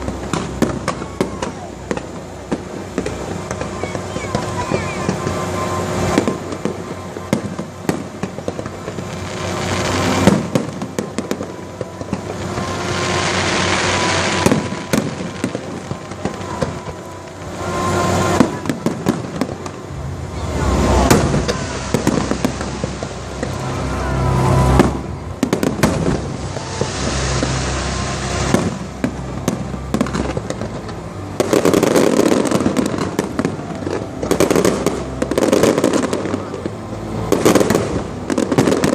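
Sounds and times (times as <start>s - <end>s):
fireworks bangs and crackling: 0.0s - 38.9s
music playing: 11.7s - 38.9s.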